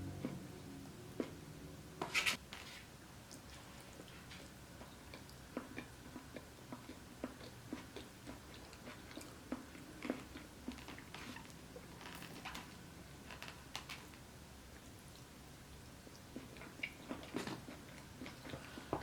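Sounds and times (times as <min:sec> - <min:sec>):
chewing and crunching: 0:03.3 - 0:12.8, 0:14.8 - 0:19.0.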